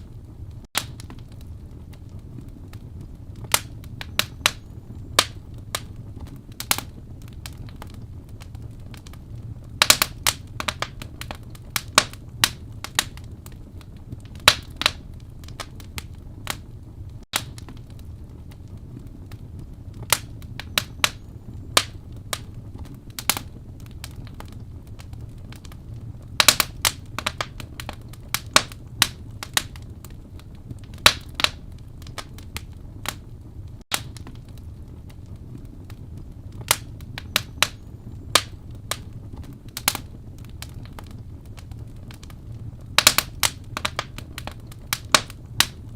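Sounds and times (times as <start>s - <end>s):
fire pops and snaps: 0.0s - 45.9s
low fire rumble: 0.0s - 45.9s.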